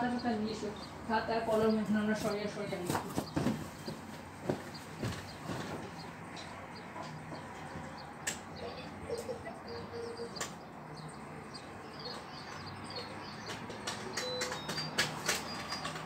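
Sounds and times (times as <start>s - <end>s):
small birds chirping faintly: 0.0s - 16.0s
sharp clicks: 8.0s - 8.6s, 10.2s - 10.7s, 11.5s - 16.0s.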